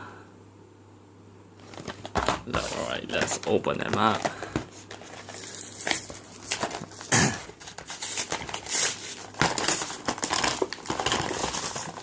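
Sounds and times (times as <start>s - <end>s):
plastic packaging crinkling: 1.6s - 12.0s.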